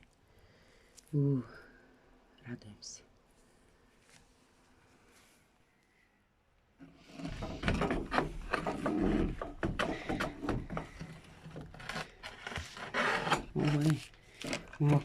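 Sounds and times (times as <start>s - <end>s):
objects knocking clattering and scraping: 6.8s - 15.0s.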